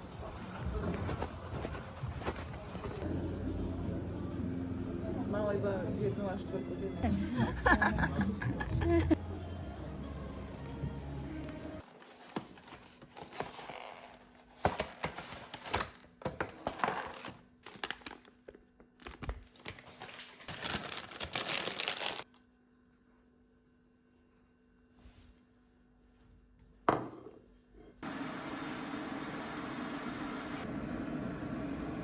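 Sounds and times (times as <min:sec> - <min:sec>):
packaging crinkling and tearing: 0:14.8 - 0:22.3.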